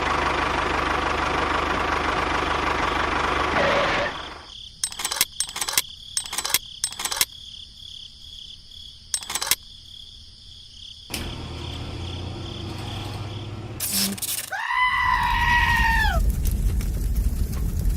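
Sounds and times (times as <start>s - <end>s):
insects trilling: 4.0s - 16.2s
insect chirps: 4.1s - 14.9s.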